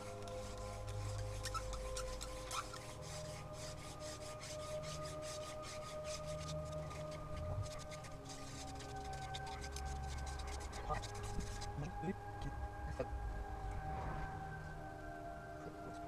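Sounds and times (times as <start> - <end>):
wooden spindle rasping in hearth board: 0.0 - 11.9.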